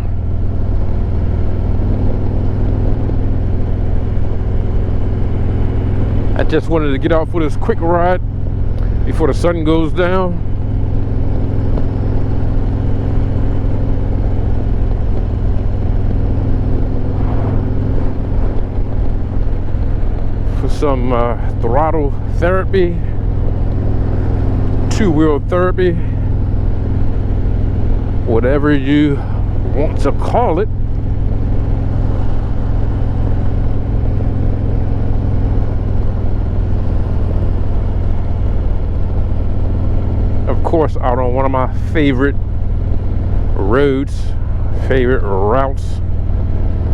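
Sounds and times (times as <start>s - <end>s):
motorcycle engine cruising: 0.0s - 46.9s
wind rushing: 11.2s - 21.6s.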